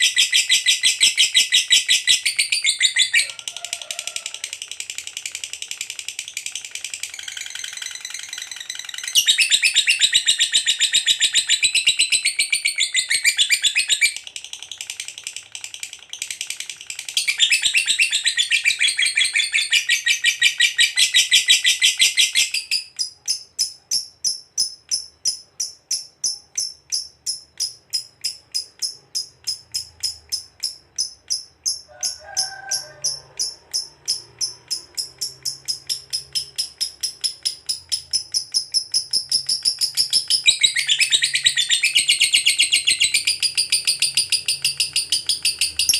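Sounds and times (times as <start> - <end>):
lovebird chattering: 0.0 - 45.9
rapid high chirps: 0.0 - 45.9.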